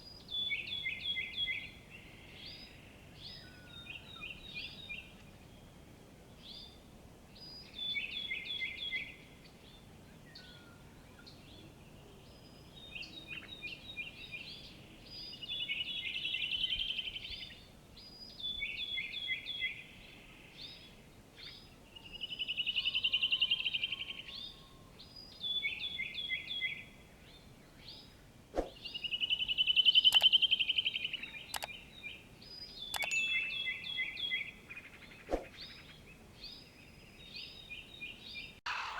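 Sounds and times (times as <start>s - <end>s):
songbirds singing with trills: 0.0s - 38.9s
sharp clicks: 30.1s - 30.4s, 31.5s - 31.8s, 32.9s - 33.2s.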